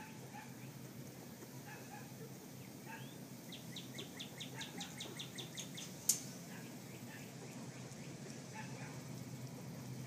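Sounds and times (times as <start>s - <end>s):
low background hum: 0.0s - 10.0s
bird chirping trill: 2.6s - 6.0s.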